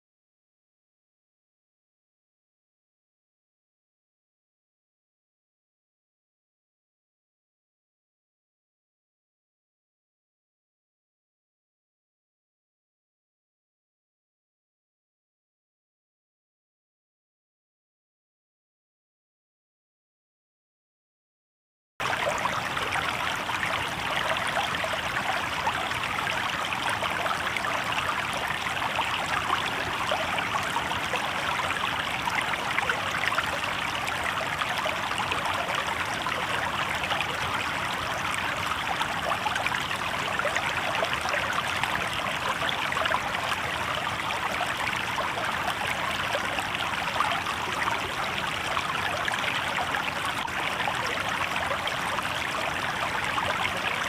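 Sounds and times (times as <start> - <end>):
river water babbling over rocks: 22.0 - 54.0.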